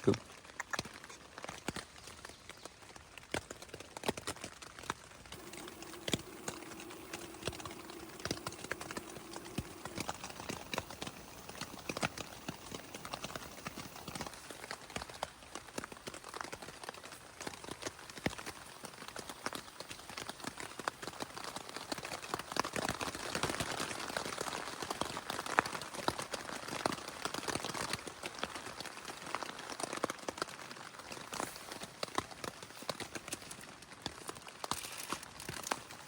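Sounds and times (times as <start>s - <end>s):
faint steady tone: 5.4s - 14.7s.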